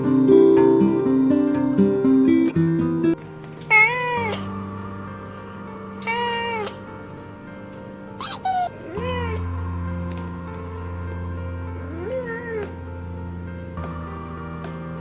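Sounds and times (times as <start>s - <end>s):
background music: 0.0s - 15.0s
cat meowing: 3.7s - 4.6s, 6.0s - 6.8s, 8.2s - 9.5s, 11.8s - 12.8s.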